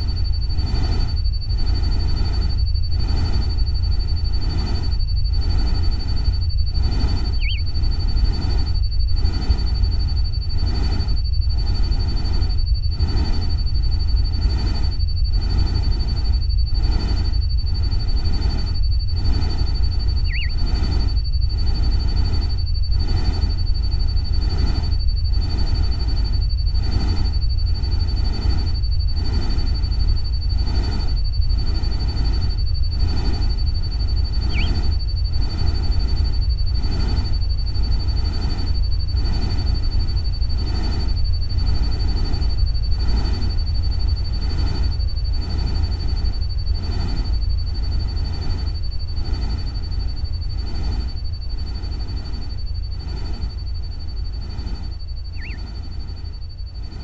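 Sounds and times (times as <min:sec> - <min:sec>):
steady high whine: 0:00.0 - 0:57.0
warbling bird-like chirp: 0:06.8 - 0:08.6, 0:19.3 - 0:21.7, 0:34.1 - 0:35.8, 0:54.4 - 0:56.3.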